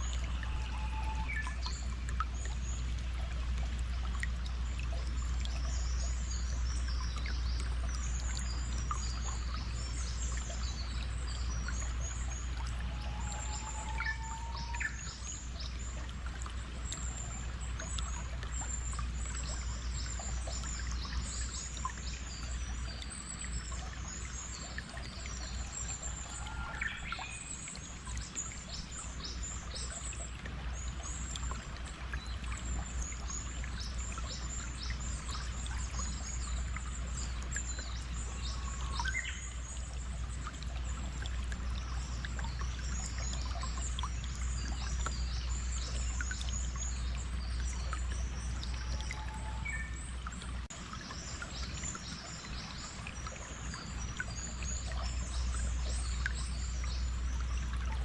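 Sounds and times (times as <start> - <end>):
stream water flowing: 0.0 - 58.0
whistled bird calls: 0.3 - 1.8, 12.8 - 15.2, 48.9 - 50.0.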